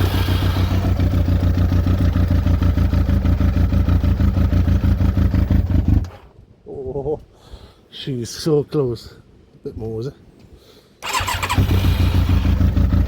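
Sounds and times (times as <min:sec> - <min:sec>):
motorcycle engine idling: 0:00.0 - 0:06.1, 0:11.0 - 0:13.0.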